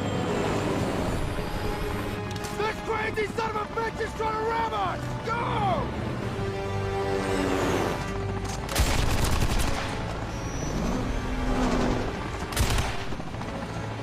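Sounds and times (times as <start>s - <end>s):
automatic gunfire bursts: 8.7s - 10.0s.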